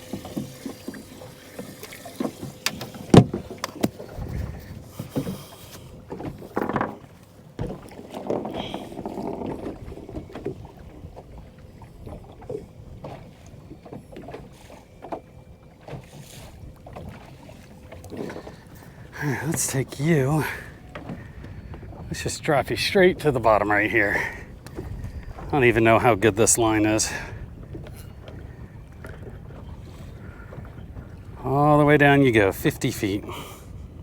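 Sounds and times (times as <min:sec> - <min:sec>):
water slapping against hull: 0:00.0 - 0:34.0.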